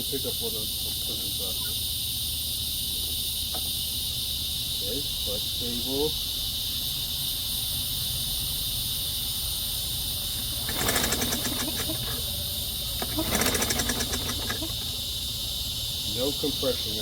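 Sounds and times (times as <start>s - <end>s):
crickets chirping: 0.0s - 17.0s
lawn mower engine cranking: 10.2s - 15.5s.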